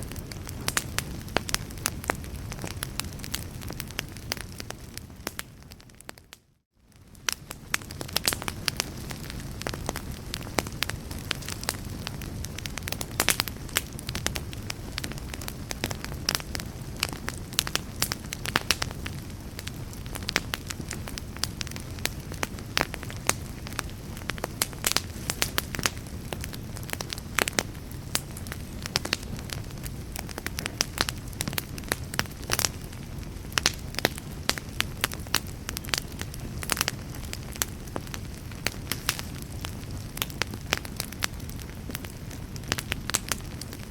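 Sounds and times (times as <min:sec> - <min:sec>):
fire crackling and popping: 0:00.0 - 0:43.9.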